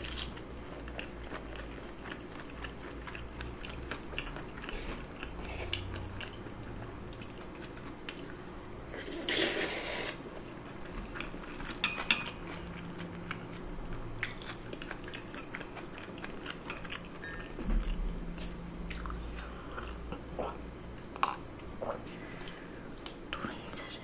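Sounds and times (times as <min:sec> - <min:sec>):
chewing with wet mouth clicks: 0:00.7 - 0:08.8, 0:14.2 - 0:20.2.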